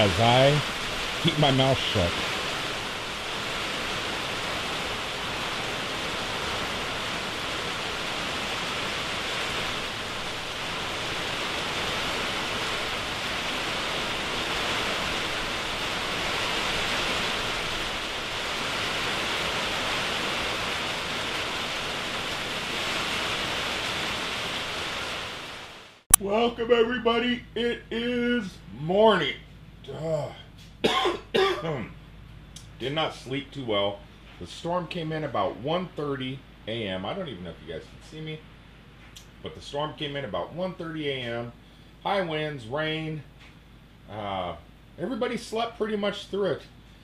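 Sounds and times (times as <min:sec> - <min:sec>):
heavy rain pouring in high winds: 0:00.0 - 0:26.1.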